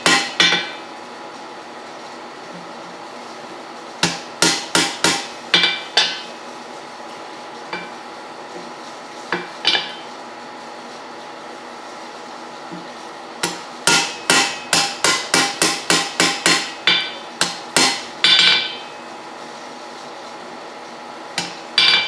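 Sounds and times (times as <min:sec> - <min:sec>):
hammer striking steel on anvil: 0:00.0 - 0:00.8, 0:04.0 - 0:06.4, 0:09.3 - 0:10.1, 0:13.4 - 0:18.9, 0:21.4 - 0:22.0.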